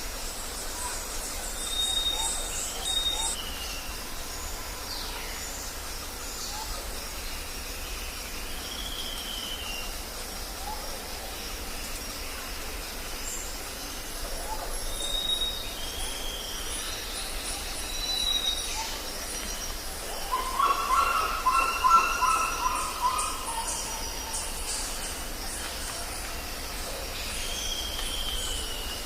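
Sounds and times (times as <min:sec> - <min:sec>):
insect chorus: 0:00.0 - 0:29.0
thin whistled bird calls: 0:00.3 - 0:04.0, 0:08.5 - 0:09.9, 0:14.4 - 0:19.6, 0:20.2 - 0:26.2, 0:27.0 - 0:29.0.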